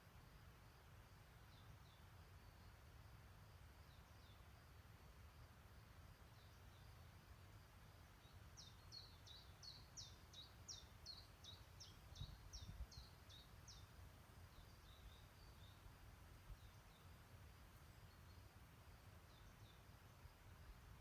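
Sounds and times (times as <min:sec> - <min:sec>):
songbird singing: 0:00.0 - 0:21.0.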